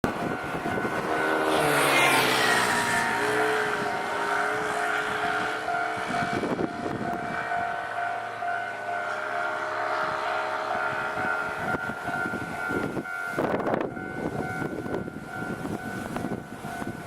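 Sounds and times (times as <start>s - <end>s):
steady crossing tones: 0.0s - 17.0s
train passing with falling whine: 0.0s - 17.0s.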